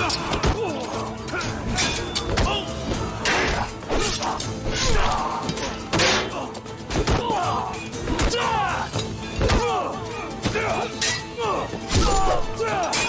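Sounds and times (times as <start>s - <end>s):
sword clashes and blows: 0.0s - 7.3s
dramatic music score: 0.0s - 13.0s
people shouting: 0.0s - 13.0s.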